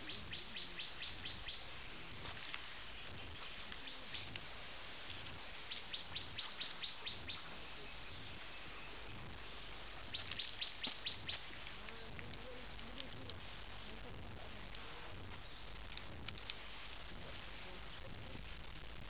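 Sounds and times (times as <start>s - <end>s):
bird chirping: 0.0s - 1.7s, 2.9s - 4.3s, 5.1s - 11.6s
steady background hiss: 0.0s - 19.0s.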